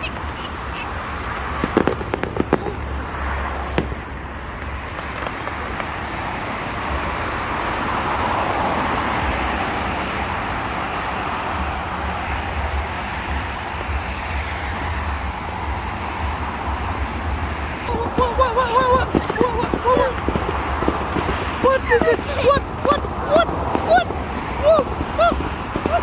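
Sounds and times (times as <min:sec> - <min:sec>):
firework bangs: 0:00.0 - 0:10.3, 0:17.0 - 0:26.0
steady rushing noise: 0:00.0 - 0:26.0.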